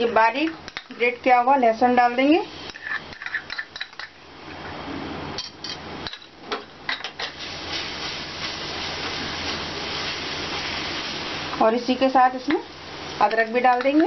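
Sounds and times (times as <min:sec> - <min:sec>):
garlic sizzling in hot oil: 0:00.0 - 0:04.4, 0:05.5 - 0:14.0
utensils tapping pan: 0:13.2 - 0:14.0.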